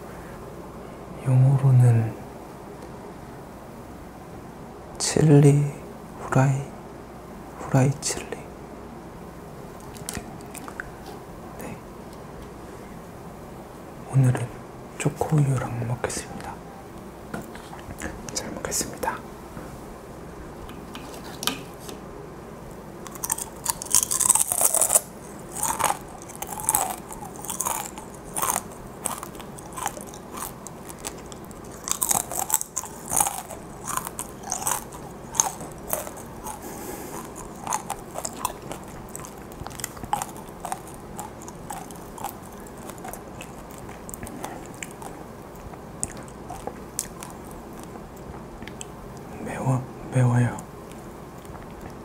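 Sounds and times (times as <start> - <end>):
crunching fried chili peppers: 23.0 - 49.3.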